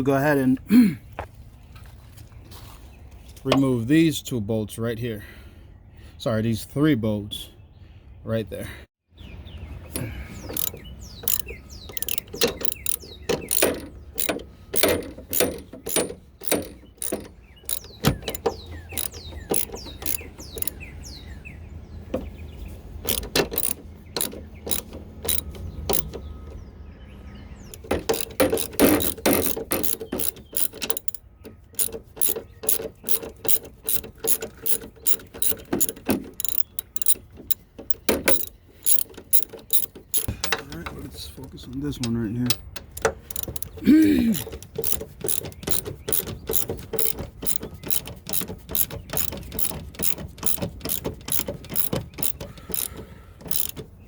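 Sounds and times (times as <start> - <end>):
ratchet pawl clicks: 10.0 - 20.8, 23.1 - 26.3, 27.7 - 40.4, 42.5 - 43.8, 44.4 - 53.8.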